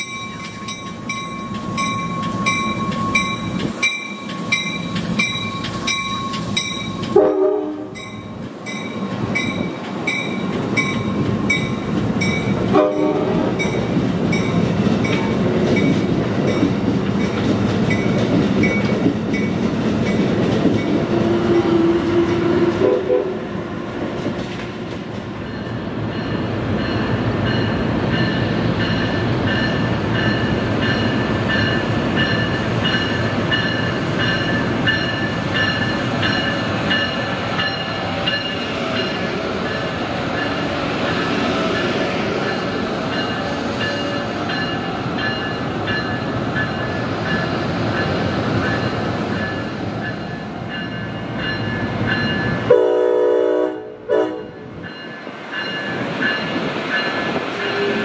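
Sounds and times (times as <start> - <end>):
train wheels rumbling on rail: 0.0 - 58.0
train horn blast: 7.1 - 8.0, 12.7 - 13.6, 21.0 - 23.5, 52.7 - 54.6.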